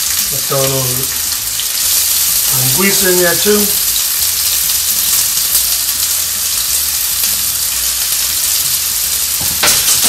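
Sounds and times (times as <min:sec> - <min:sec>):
sausage sizzling in a pan: 0:00.0 - 0:10.0.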